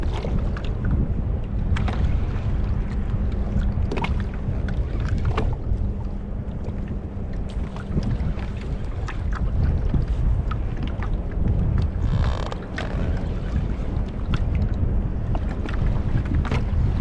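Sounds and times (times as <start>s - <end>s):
water lapping at hull: 0.0s - 17.0s
wind buffeting microphone: 0.0s - 17.0s
small knocks and splashes: 7.5s - 11.2s.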